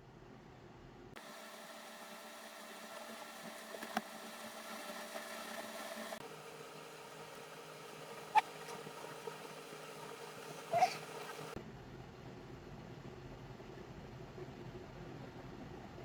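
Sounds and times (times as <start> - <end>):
faint mechanical hum: 0.0 - 16.0.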